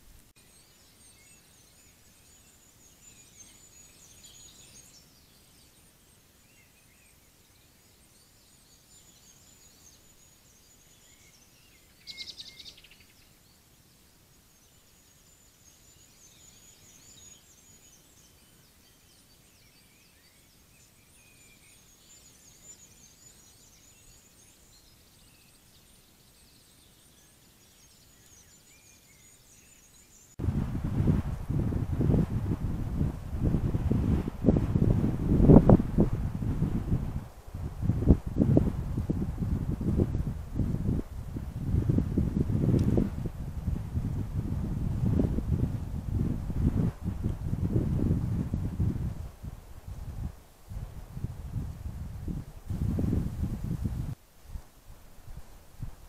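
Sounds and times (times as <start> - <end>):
faint distant birdsong: 0.0 - 54.2
microphone hiss: 0.0 - 56.0
bird trill: 7.8 - 13.3.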